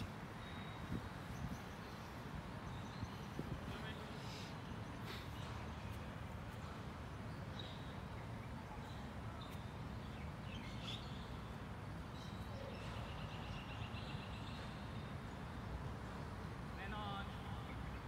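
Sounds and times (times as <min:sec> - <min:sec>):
bird chirps: 0:07.2 - 0:15.4.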